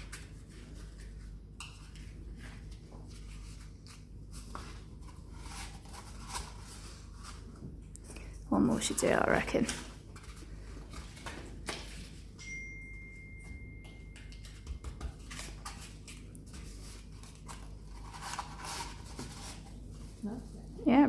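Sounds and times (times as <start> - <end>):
cardboard tubes scraping and rustling: 0.0 - 8.2, 15.2 - 20.7.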